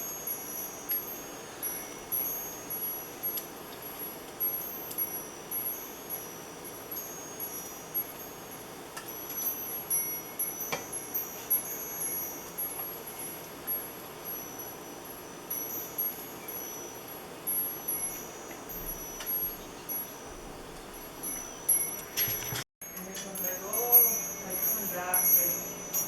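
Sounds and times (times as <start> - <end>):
steady hiss: 0.0 - 26.0
wind chimes ringing: 0.0 - 26.0.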